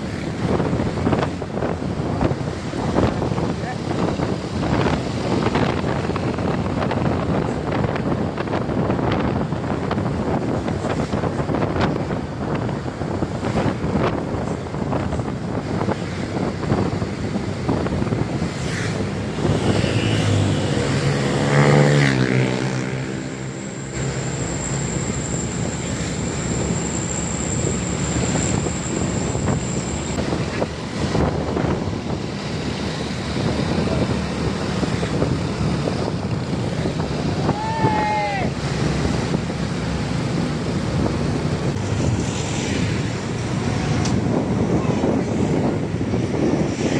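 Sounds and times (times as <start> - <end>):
road traffic: 0.0 - 46.9
wind buffeting microphone: 0.0 - 46.9
truck diesel engine passing: 9.2 - 37.6, 38.3 - 46.6.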